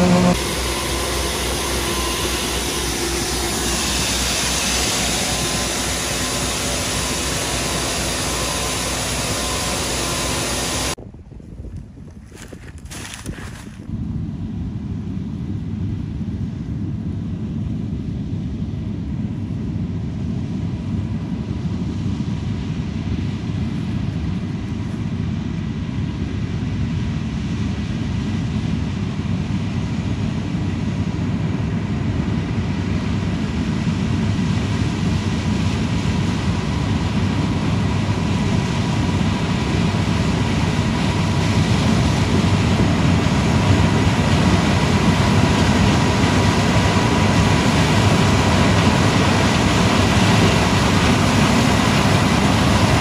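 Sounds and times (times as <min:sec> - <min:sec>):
diesel engine rumbling: 0:00.0 - 0:11.1, 0:30.3 - 0:53.0.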